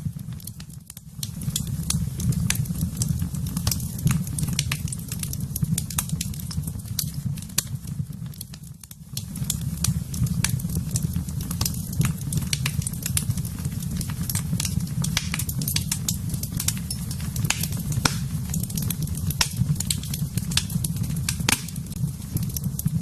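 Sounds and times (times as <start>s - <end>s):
fire crackling and popping: 0.0s - 23.0s
low fire rumble: 0.0s - 23.0s.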